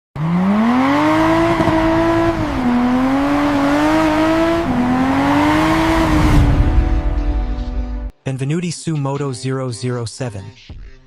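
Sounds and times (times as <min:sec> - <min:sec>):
car engine accelerating: 0:00.2 - 0:07.5.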